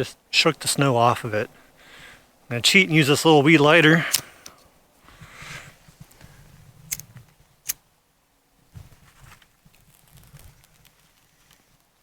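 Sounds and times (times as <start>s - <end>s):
lighter clicks: 4.1s - 4.6s, 6.9s - 7.8s
soft handling rustles: 4.2s - 7.5s, 8.6s - 12.0s.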